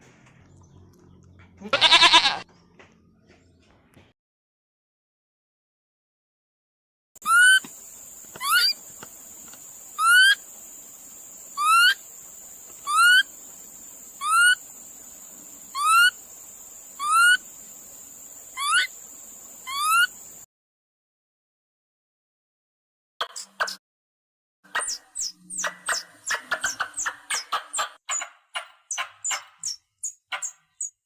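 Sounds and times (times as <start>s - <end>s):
steady background hiss: 7.3s - 20.4s.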